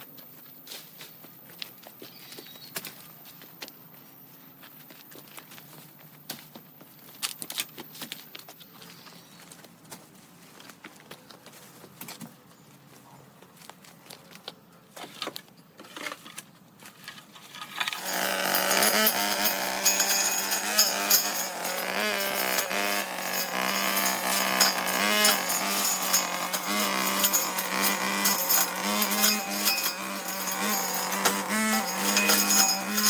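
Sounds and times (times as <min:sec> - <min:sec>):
clicks and rattles: 0:17.4 - 0:33.0
power tool buzzing: 0:17.8 - 0:33.0.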